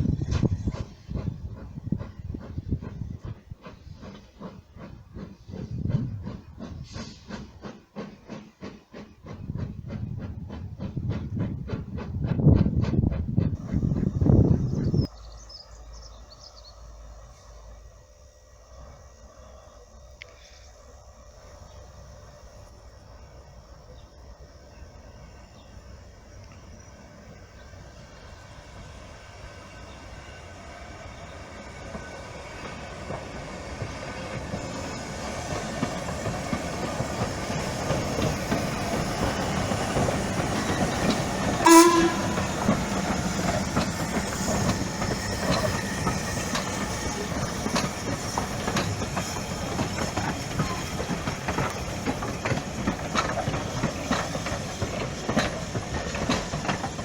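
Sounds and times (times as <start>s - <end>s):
train wheels clicking over rail joints: 0.0s - 15.1s, 24.7s - 57.0s
train warning horn blast: 41.6s - 42.9s.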